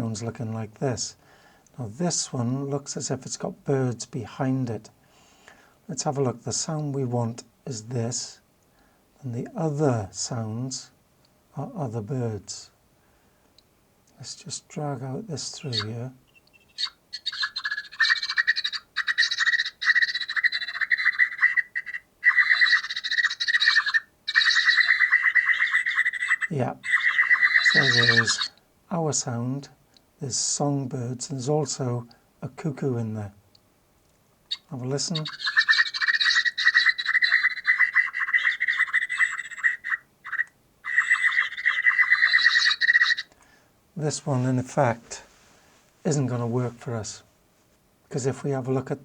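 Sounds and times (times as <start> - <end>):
bird rapid pulsed call: 15.6 - 28.6, 34.5 - 43.3.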